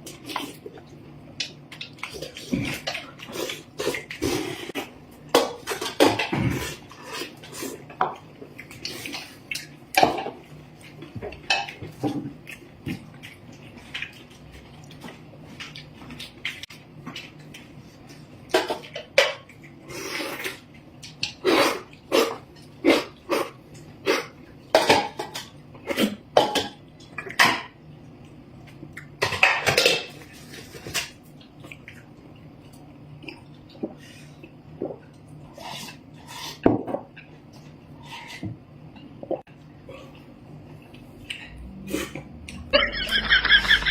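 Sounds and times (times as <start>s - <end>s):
utensils clinking against dishes: 29.2s - 31.2s.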